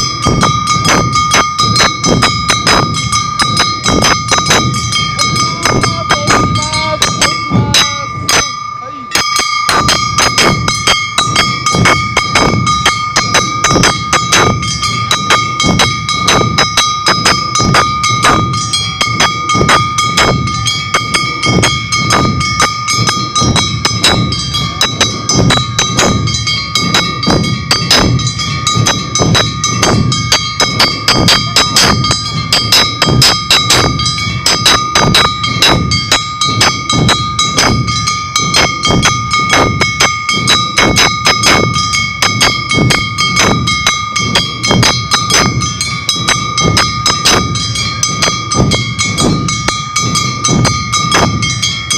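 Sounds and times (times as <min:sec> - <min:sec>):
drums beating: 0:00.0 - 0:51.9
hand-struck gongs: 0:00.0 - 0:51.9
steady high ringing: 0:00.0 - 0:51.9
voices calling out: 0:02.5 - 0:35.7.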